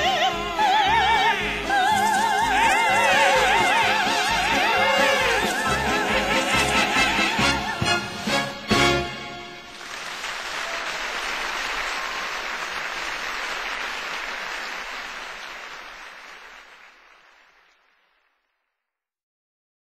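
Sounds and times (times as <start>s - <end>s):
audience applauding: 0.7s - 18.5s
orchestral chord: 1.4s - 9.8s.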